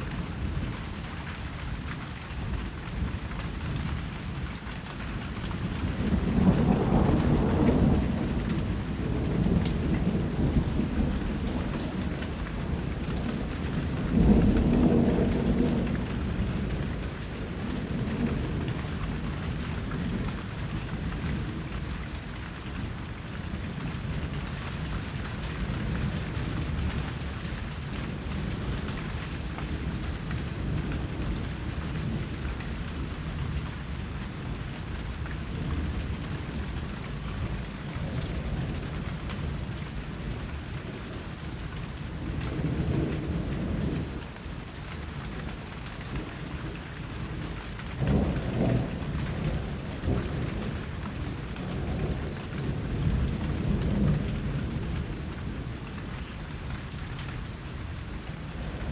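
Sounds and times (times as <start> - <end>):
rain falling: 0.0 - 58.9.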